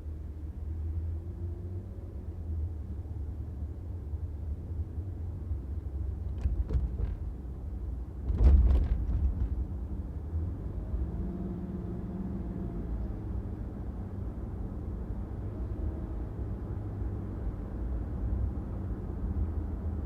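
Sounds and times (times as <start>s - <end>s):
car driving rumble: 4.6s - 11.9s.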